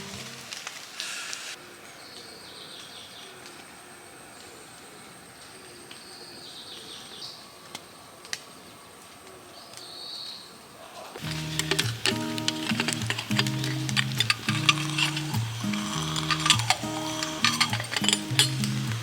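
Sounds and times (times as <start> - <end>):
birds chirping: 1.5 - 8.0, 9.4 - 19.0
sharp clicks: 11.2 - 19.0.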